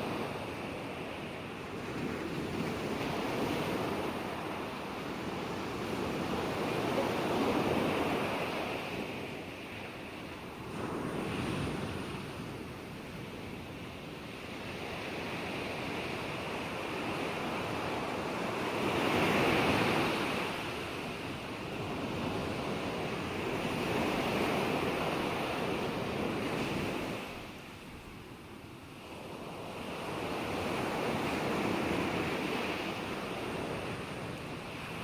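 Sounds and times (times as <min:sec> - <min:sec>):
ocean waves breaking: 0:00.0 - 0:35.0.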